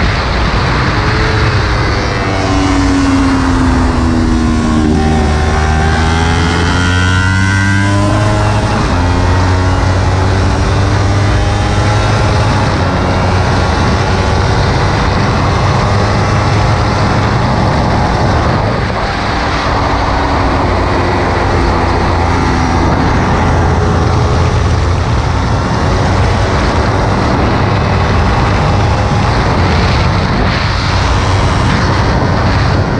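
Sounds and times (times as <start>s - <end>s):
motorcycle engine accelerating: 0.0s - 32.9s
wind rushing: 0.0s - 32.9s.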